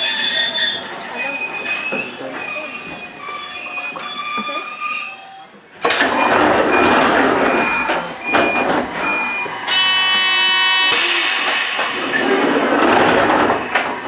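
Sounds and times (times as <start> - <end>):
electric train rumbling: 0.0 - 14.0
short high beeps: 6.2 - 11.0
train horn blast: 7.3 - 11.1.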